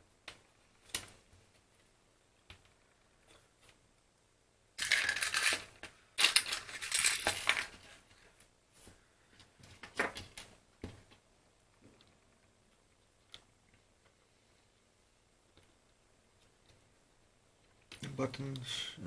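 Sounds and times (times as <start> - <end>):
plastic phone parts crackling: 4.8 - 8.0.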